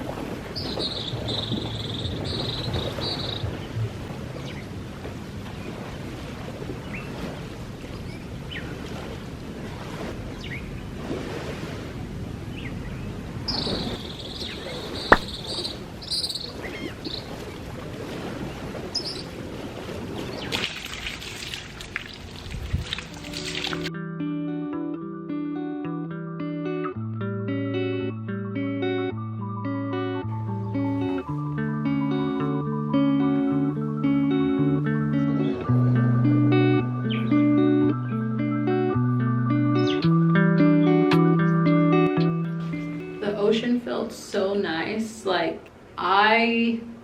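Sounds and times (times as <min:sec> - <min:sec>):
steady wind: 0:00.0 - 0:23.9
water noise: 0:00.0 - 0:23.9, 0:30.3 - 0:46.3.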